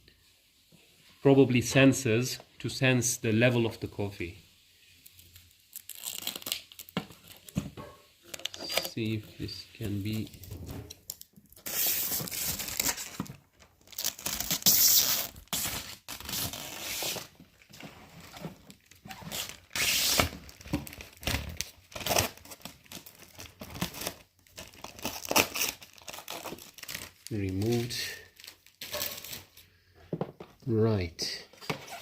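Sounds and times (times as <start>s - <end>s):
plastic film peeled and crinkled: 4.7s - 29.6s.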